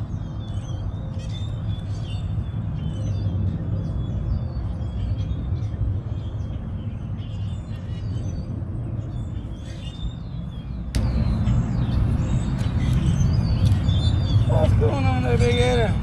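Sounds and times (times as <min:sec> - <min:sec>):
small birds chirping: 0:00.0 - 0:16.0
low rumble: 0:10.8 - 0:16.0.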